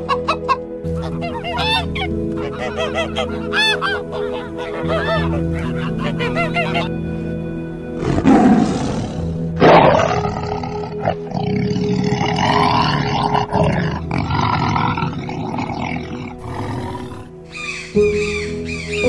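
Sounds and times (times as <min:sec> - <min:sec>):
background music: 0:00.0 - 0:19.0
big cat growling: 0:08.0 - 0:17.4
big cat roaring: 0:08.0 - 0:17.4.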